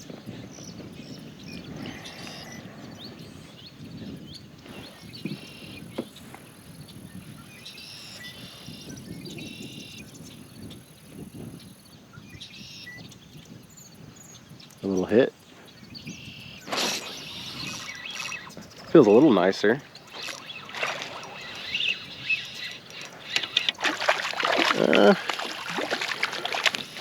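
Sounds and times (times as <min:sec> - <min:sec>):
water around kayak: 0:00.0 - 0:13.7, 0:14.4 - 0:27.0
wind buffeting microphone: 0:00.0 - 0:27.0
high buzzy chirps: 0:16.6 - 0:18.8, 0:19.9 - 0:27.0.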